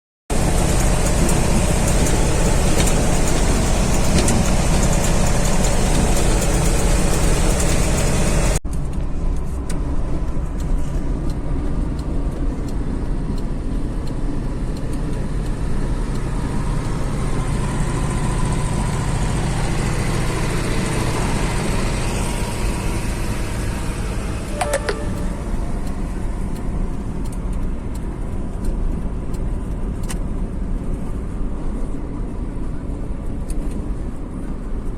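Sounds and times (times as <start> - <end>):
truck engine running: 0.3 - 29.8
single click: 24.6 - 25.3.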